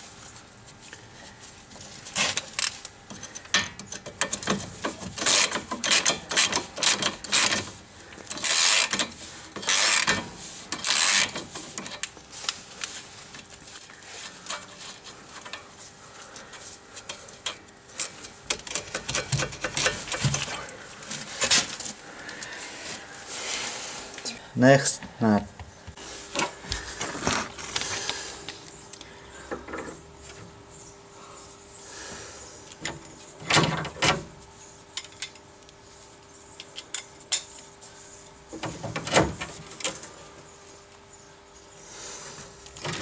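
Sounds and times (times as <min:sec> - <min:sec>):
wrench clicking and rasping on nut: 0:03.2 - 0:07.6, 0:08.2 - 0:10.2, 0:10.8 - 0:12.1.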